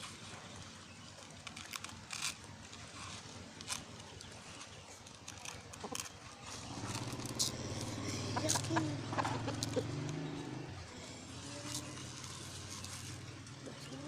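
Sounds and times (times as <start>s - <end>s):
vehicle engine drone: 0.0s - 14.0s
chickens clucking: 5.8s - 14.0s.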